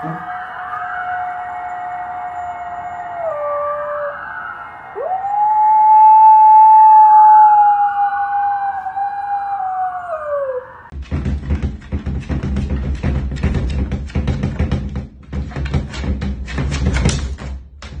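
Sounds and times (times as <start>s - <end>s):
dog howling: 0.0s - 10.9s
faint siren wailing: 0.0s - 10.9s.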